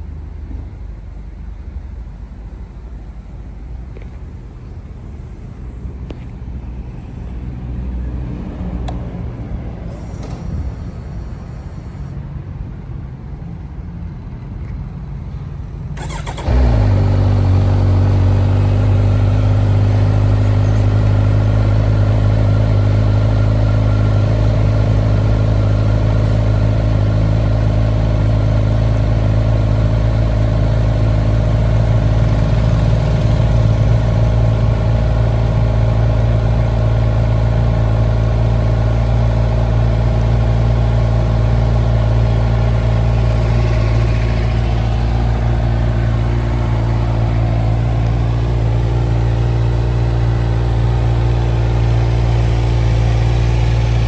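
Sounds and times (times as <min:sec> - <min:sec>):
motorcycle engine starting and idling: 0:15.8 - 0:54.0.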